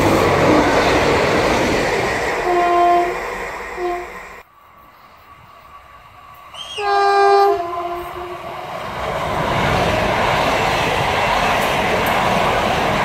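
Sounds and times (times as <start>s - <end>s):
train wheels rolling on rails: 0.0s - 13.0s
train horn blast: 2.4s - 3.2s, 3.8s - 4.2s, 6.6s - 8.4s.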